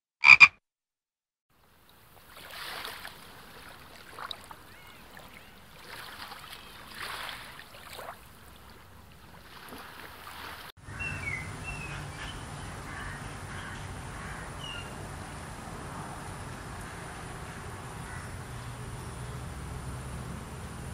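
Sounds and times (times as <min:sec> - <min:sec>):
soft water sounds: 0:01.5 - 0:10.7.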